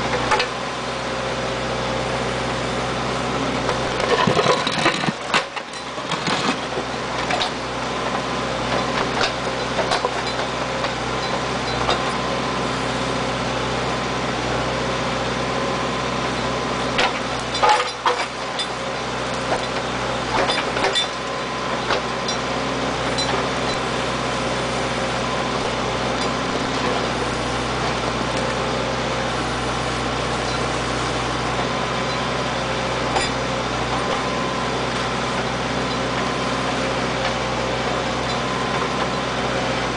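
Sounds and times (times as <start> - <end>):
backhoe engine running: 0.0 - 39.9.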